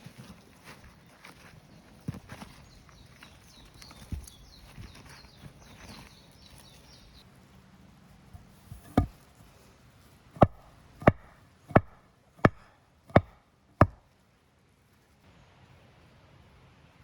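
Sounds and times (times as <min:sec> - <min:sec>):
axe chopping wood: 0:08.4 - 0:09.2, 0:10.4 - 0:14.1.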